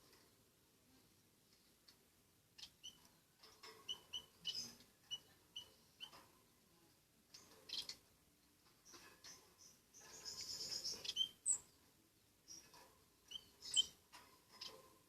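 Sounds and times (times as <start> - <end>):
small bird chirping: 2.5 - 6.3, 7.3 - 15.0.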